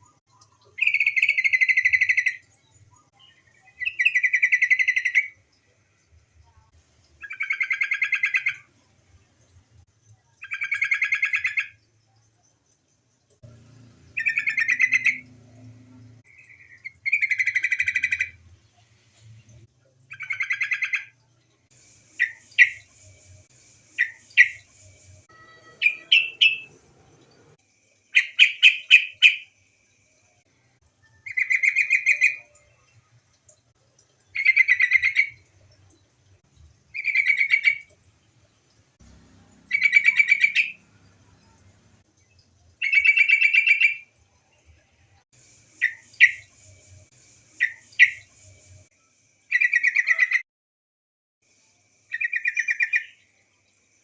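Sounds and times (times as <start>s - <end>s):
bulbul calling: 14.2s - 15.4s, 25.4s - 26.8s, 28.2s - 29.5s.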